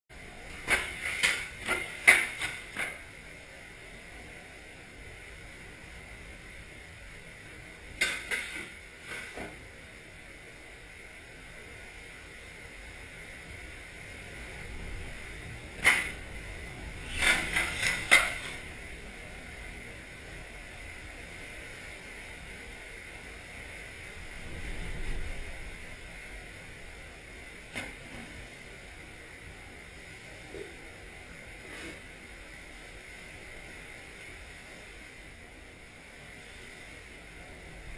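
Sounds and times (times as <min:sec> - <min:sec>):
blizzard wind hissing: 0:13.5 - 0:37.9.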